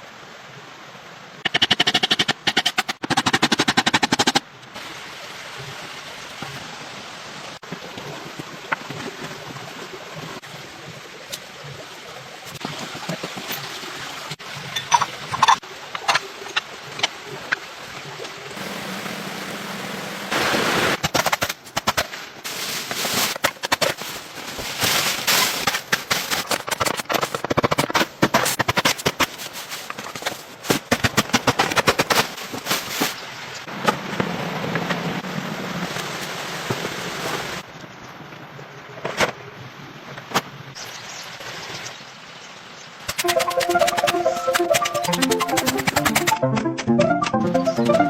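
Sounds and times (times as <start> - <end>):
steady hiss: 18.6 - 21.0.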